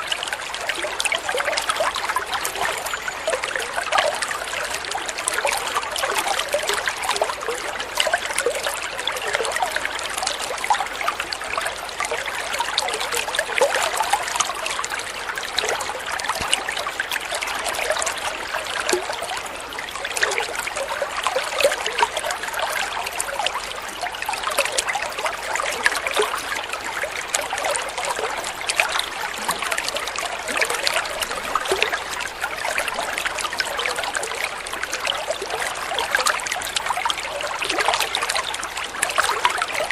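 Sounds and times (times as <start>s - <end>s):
water flowing and trickling: 0.0s - 39.9s.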